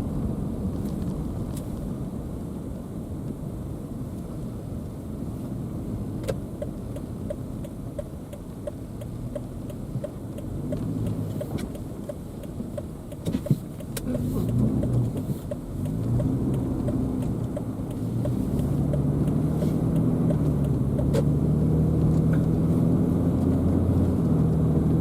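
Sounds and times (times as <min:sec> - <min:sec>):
car road and engine rumble: 0:00.0 - 0:25.0
light regular ticking: 0:06.2 - 0:25.0.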